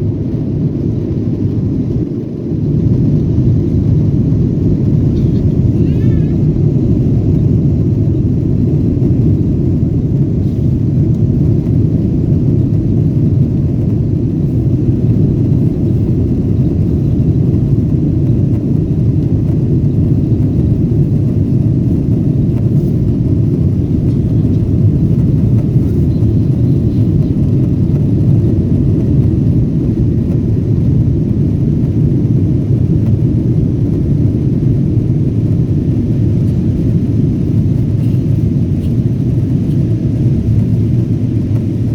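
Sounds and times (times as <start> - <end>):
airliner engines rumbling: 0.0 - 41.9.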